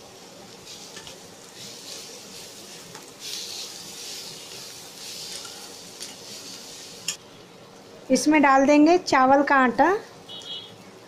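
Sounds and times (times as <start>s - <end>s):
vegetables sizzling in oil: 0.0s - 8.6s.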